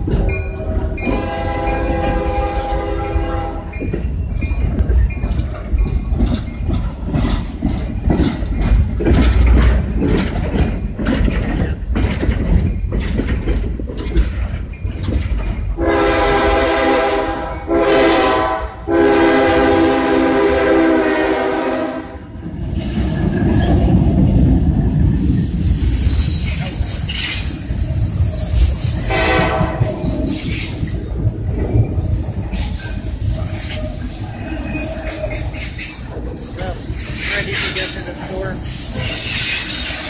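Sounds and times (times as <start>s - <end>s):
wheels clicking over rail joints: 0.0s - 17.8s, 22.4s - 40.0s
rail cars rolling past: 0.0s - 40.0s
train horn: 1.1s - 3.8s, 15.8s - 22.3s, 29.1s - 30.1s.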